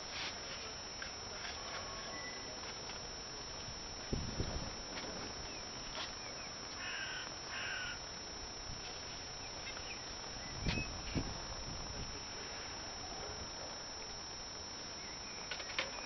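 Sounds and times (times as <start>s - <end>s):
crow cawing: 6.8s - 8.0s.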